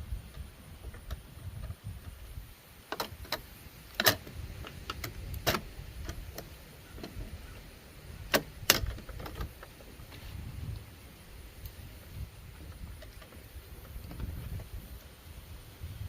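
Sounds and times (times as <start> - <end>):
tools and parts clicking: 2.9 - 7.2.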